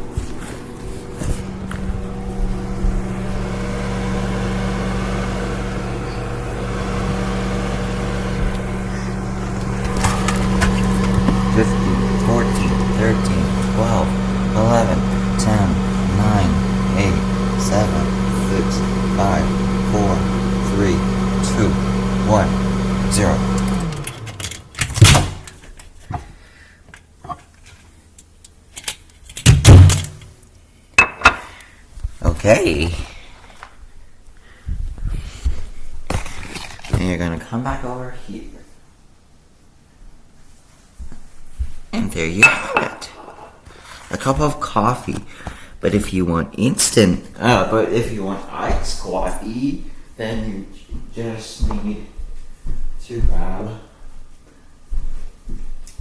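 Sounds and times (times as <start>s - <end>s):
microwave oven humming: 0.0s - 25.4s.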